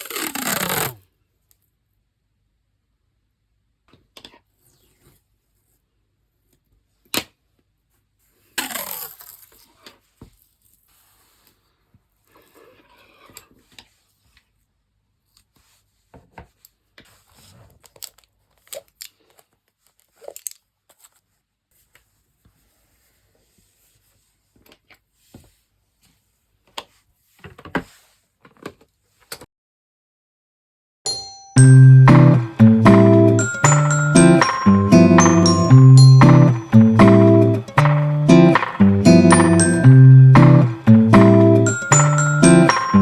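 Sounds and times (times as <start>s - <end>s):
loud tearing sound: 0.0s - 1.0s, 8.6s - 9.7s.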